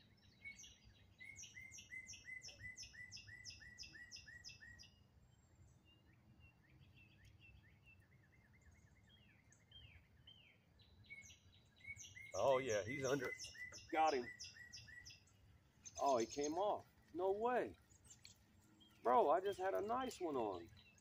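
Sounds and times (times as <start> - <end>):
outdoor ambience: 0.0 - 21.0
songbird singing down-slurred notes: 0.0 - 21.0
faint falling bird calls: 12.2 - 15.3.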